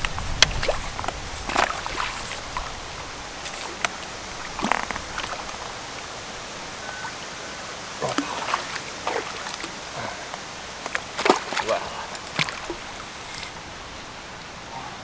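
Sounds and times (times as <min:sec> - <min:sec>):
short knocks and splashes: 0:00.0 - 0:06.3, 0:08.0 - 0:13.6
river water rushing: 0:00.0 - 0:15.0.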